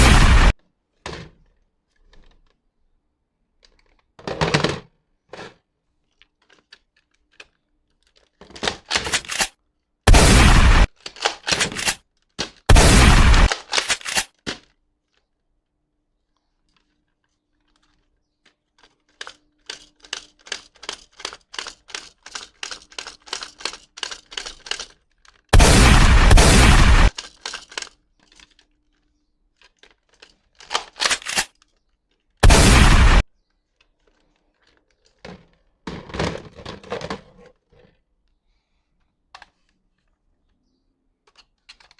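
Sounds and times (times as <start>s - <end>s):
toy gun gunfire bursts: 10.1s - 12.0s, 12.7s - 14.3s, 25.5s - 27.9s, 30.6s - 31.5s, 32.4s - 33.2s
toy gun clicking: 10.8s - 14.8s, 18.7s - 33.2s, 41.3s - 41.9s.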